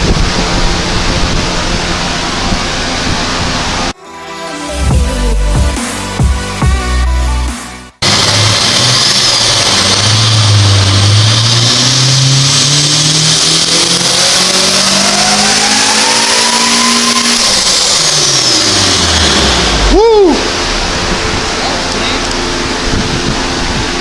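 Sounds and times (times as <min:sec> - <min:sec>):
car engine revving on dyno: 0:00.0 - 0:04.0, 0:08.0 - 0:24.0
supercharger whine: 0:00.0 - 0:24.0.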